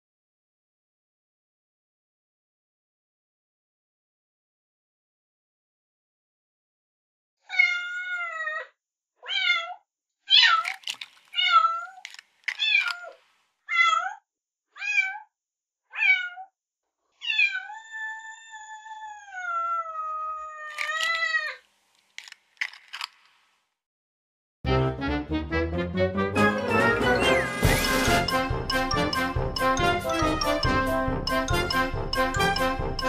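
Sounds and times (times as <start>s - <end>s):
sharp clicks: 10.6s - 11.4s, 12.0s - 13.2s, 22.0s - 23.4s
kitten meowing: 17.2s - 21.6s.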